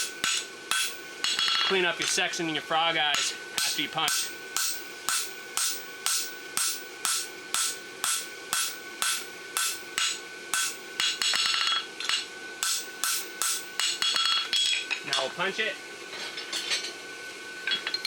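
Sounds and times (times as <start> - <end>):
hammer striking steel on anvil: 0.0 - 2.2, 3.1 - 15.3.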